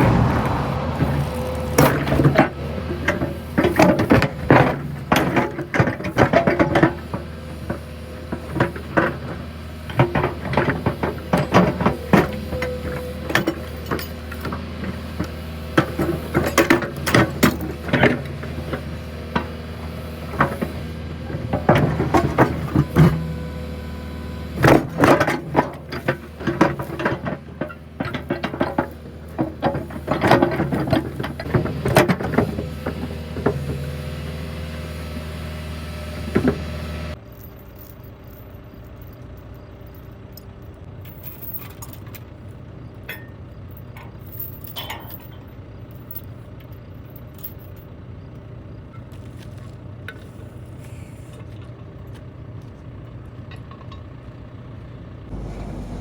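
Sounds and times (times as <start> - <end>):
metallic rattles and clanks: 0.0 - 19.6, 24.6 - 33.8, 43.1 - 47.8
diesel engine running: 0.0 - 56.0.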